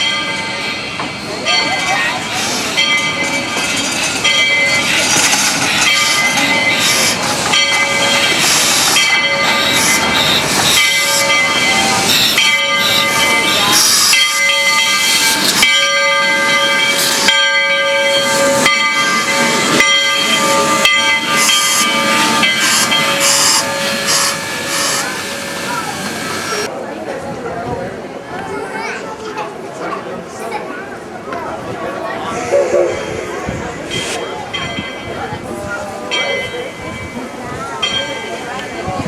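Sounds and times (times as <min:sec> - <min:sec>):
steam locomotive exhaust chuffing: 0:01.3 - 0:26.7, 0:32.3 - 0:35.0
steam hissing: 0:03.8 - 0:17.4, 0:19.4 - 0:26.7, 0:32.3 - 0:34.6.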